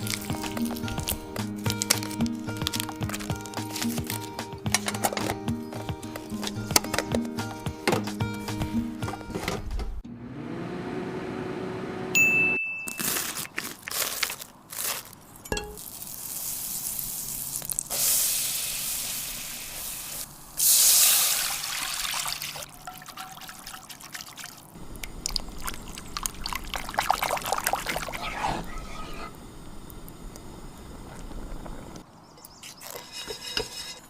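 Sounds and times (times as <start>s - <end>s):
liquid being poured: 21.1s - 28.8s.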